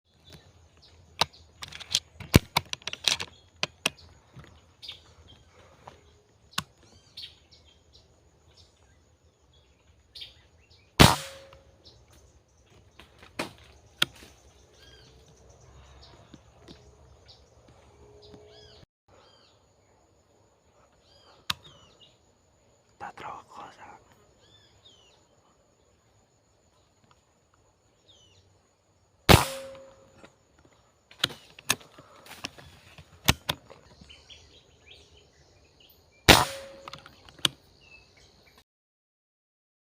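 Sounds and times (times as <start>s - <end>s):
birds chirping: 0.1s - 38.6s
air rifle shot: 11.0s - 11.7s, 29.3s - 30.1s, 36.3s - 37.0s.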